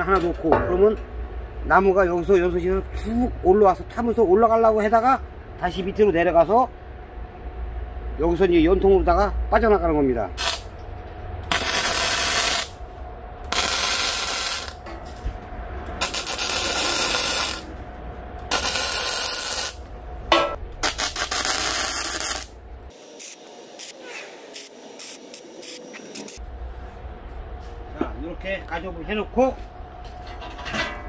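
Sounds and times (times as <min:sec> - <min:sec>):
arc welding crackling hiss: 0:10.4 - 0:10.7, 0:11.5 - 0:12.8, 0:13.5 - 0:14.8, 0:16.0 - 0:17.7, 0:18.5 - 0:19.8, 0:20.8 - 0:26.4.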